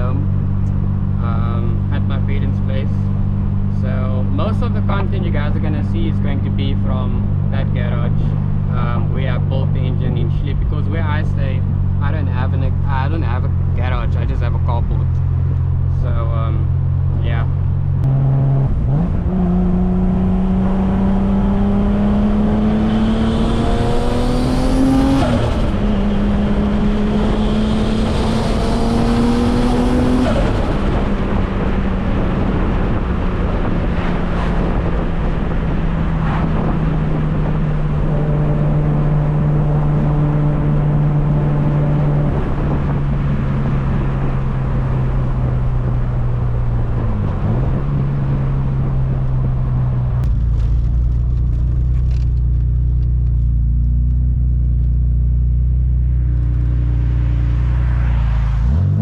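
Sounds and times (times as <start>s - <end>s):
car engine accelerating hard: 0.0s - 59.0s
high turbo whine: 0.0s - 59.0s.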